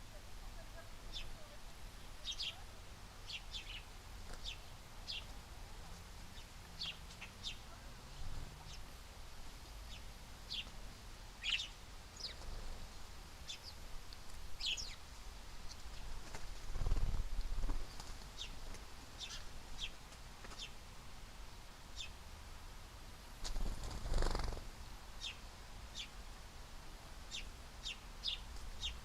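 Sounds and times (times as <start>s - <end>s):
small birds chirping: 0.0s - 21.0s, 21.8s - 22.4s, 23.4s - 26.3s, 27.1s - 29.0s.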